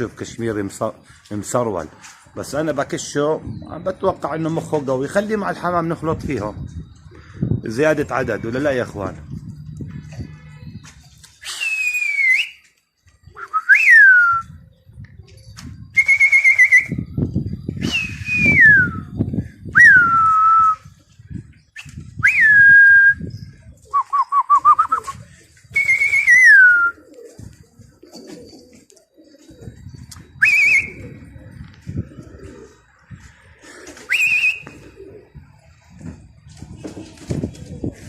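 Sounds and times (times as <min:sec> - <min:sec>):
loud whistles sliding down: 0:11.4 - 0:12.6, 0:16.0 - 0:17.1, 0:21.8 - 0:23.3, 0:24.0 - 0:27.0, 0:30.4 - 0:31.1, 0:34.1 - 0:34.9
warbling whistle trill: 0:11.4 - 0:12.6, 0:16.0 - 0:17.1, 0:30.4 - 0:31.2, 0:34.1 - 0:34.8.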